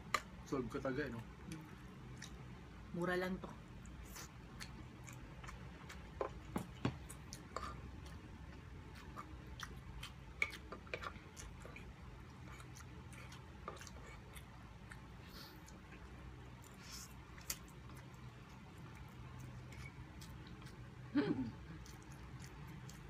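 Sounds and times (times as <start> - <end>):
low room hum: 0.0 - 23.0
wet chewing and mouth smacks: 3.8 - 21.0, 21.7 - 23.0.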